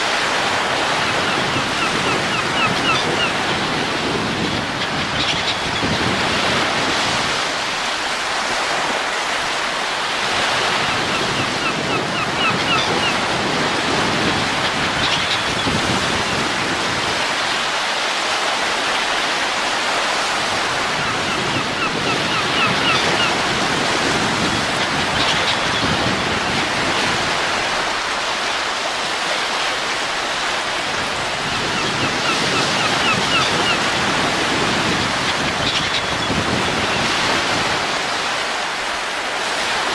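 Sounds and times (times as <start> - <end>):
rushing wind: 0.0 - 39.9.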